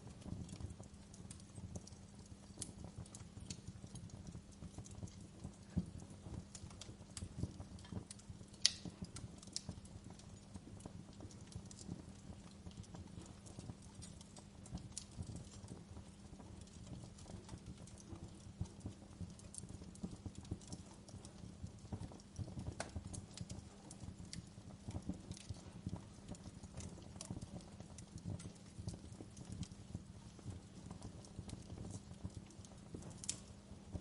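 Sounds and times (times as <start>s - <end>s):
fireplace crackling: 0.0s - 34.0s.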